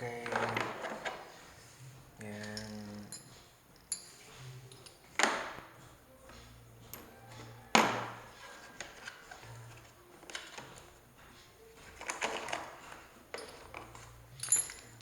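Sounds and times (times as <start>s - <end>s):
drill parts knocking with ringing: 13.3s - 15.0s.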